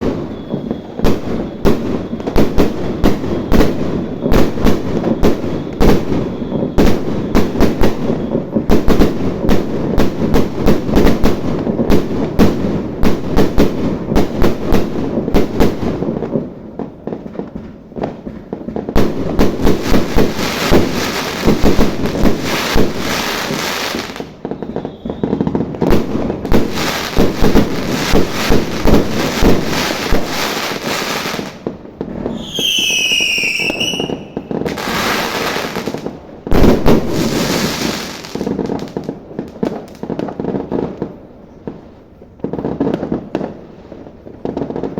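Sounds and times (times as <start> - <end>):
fireworks sharp bangs: 0.0 - 41.8
fireworks crackle: 0.0 - 44.9.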